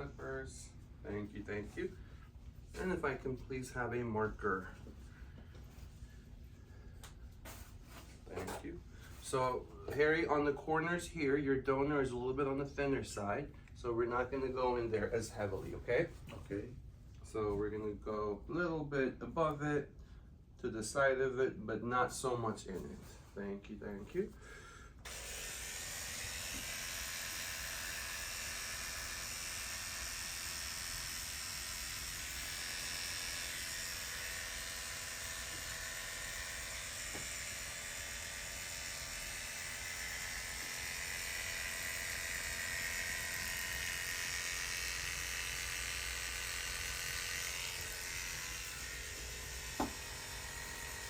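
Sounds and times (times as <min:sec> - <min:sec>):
electric hair clippers running: 0:25.0 - 0:51.0.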